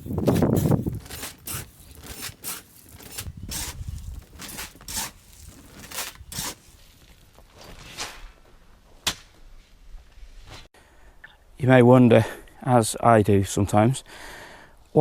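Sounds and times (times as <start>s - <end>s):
shovel scraping into gravel: 0.0s - 7.0s.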